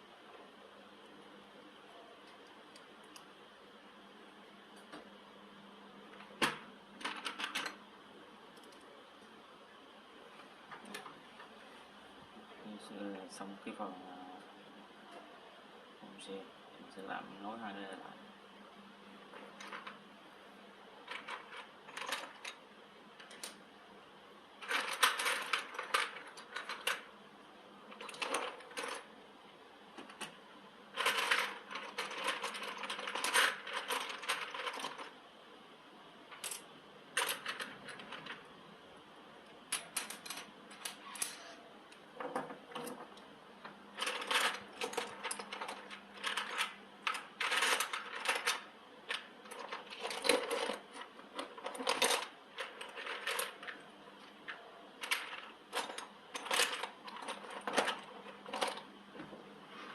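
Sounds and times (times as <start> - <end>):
faint steady hum: 0.0 - 59.9
metal parts clinking and rattling: 21.1 - 22.6, 24.6 - 27.0, 27.9 - 29.1, 31.0 - 35.1, 39.7 - 41.6, 44.0 - 53.8, 54.4 - 58.8.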